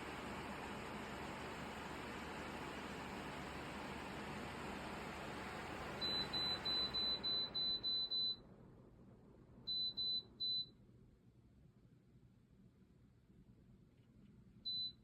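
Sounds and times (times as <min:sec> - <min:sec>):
fan air noise: 0:00.0 - 0:09.6.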